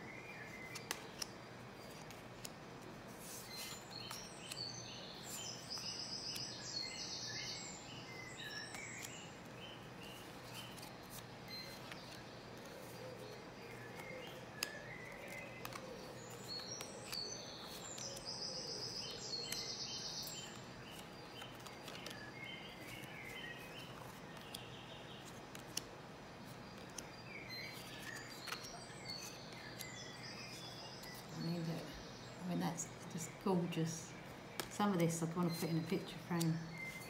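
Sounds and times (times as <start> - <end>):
birds chirping: 3.0 - 37.0
cards clicking onto a pile: 15.6 - 15.9.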